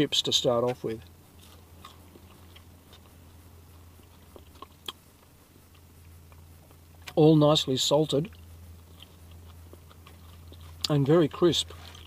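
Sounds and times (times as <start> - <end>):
steady low hum: 0.0 - 12.0
chewing crisp potato chips: 1.3 - 3.2, 3.8 - 7.2, 8.2 - 12.0.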